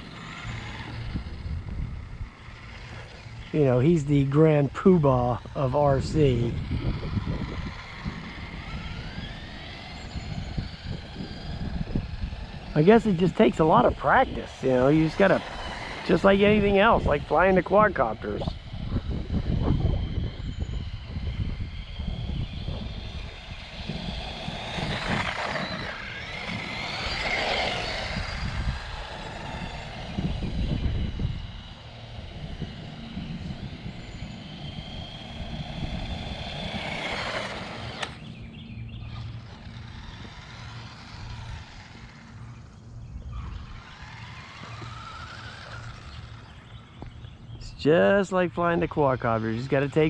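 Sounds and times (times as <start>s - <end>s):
electric toy truck motor whining: 0.0s - 50.0s.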